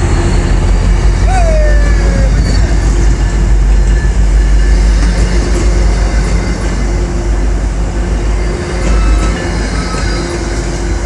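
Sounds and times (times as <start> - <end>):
train wheels on rails: 0.0 - 11.0.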